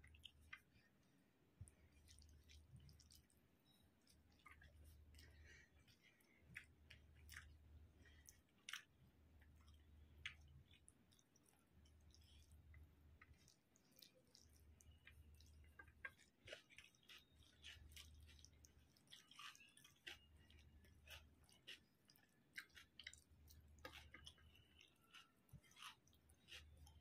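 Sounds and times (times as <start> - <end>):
faint chewing: 0.0 - 27.0
fingers mixing rice on plate: 0.0 - 27.0.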